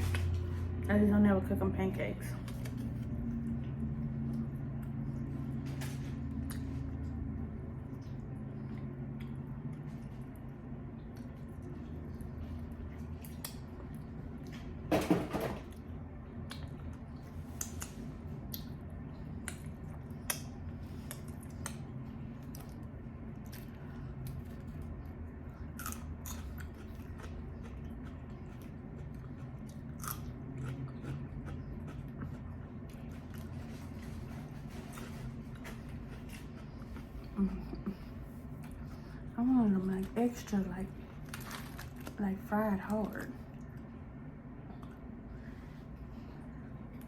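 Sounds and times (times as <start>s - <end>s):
person chewing crunchy food: 15.7s - 39.3s, 41.1s - 42.2s.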